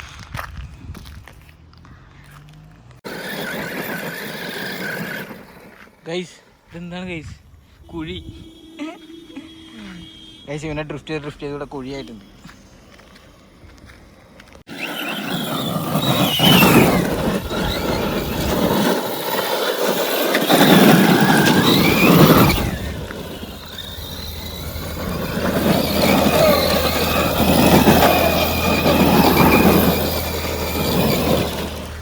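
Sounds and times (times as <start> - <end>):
tyres scrabbling on gravel: 0.0 - 6.8, 10.7 - 32.0
electric motor whine: 14.7 - 32.0.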